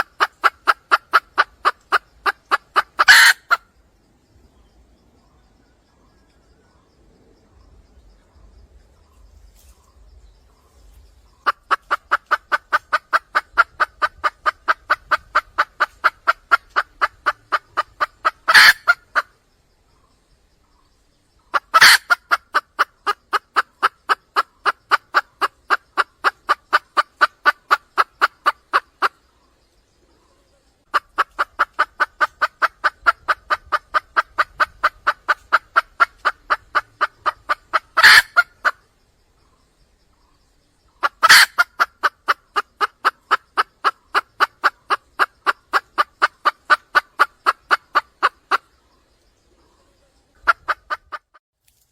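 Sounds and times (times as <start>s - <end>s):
hen clucking: 0.0s - 3.7s, 11.2s - 19.3s, 21.4s - 29.3s, 30.8s - 38.8s, 41.0s - 48.8s, 50.3s - 51.4s.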